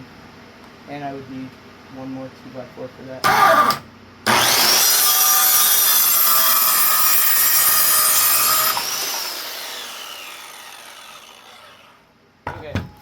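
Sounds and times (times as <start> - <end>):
electric saw cutting wood: 3.2 - 12.0.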